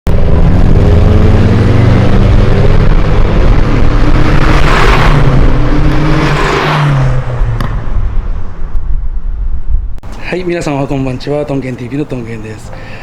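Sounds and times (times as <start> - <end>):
car engine running loud: 0.1 - 9.3.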